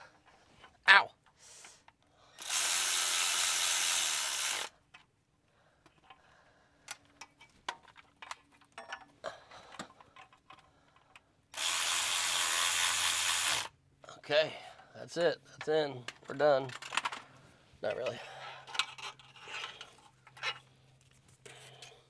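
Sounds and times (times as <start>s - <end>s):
power ratchet running: 2.4s - 4.7s, 11.6s - 13.7s
tools and parts clicking: 6.9s - 12.4s, 16.1s - 17.2s, 18.6s - 20.6s.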